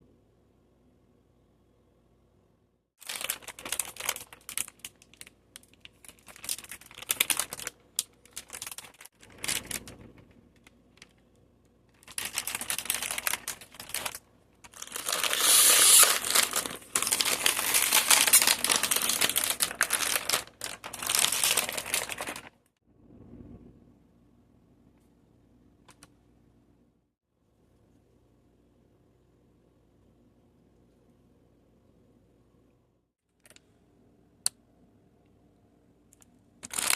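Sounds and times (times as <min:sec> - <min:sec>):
plastic packaging crinkling: 0:03.0 - 0:11.2, 0:11.9 - 0:22.6, 0:36.6 - 0:36.9.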